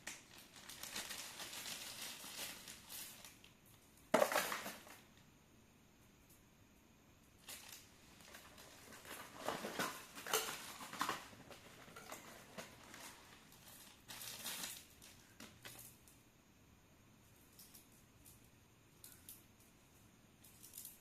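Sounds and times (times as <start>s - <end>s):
packaging rustling and crinkling: 0.0s - 3.5s, 4.1s - 5.0s, 7.4s - 16.0s.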